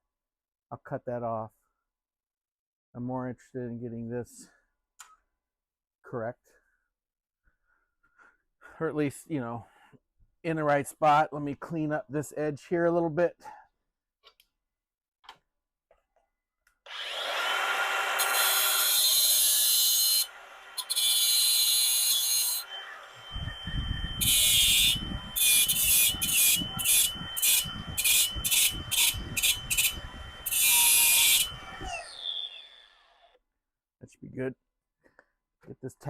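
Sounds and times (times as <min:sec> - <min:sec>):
electric grinder whining: 0:16.9 - 0:33.4
grinding wheel on steel: 0:22.1 - 0:32.6.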